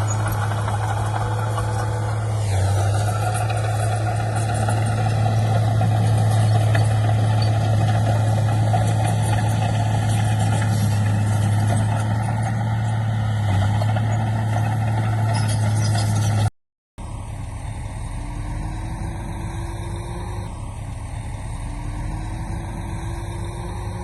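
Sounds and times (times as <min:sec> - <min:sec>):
heavy diesel engine running: 0:00.0 - 0:24.0
constant low hum: 0:17.0 - 0:24.0.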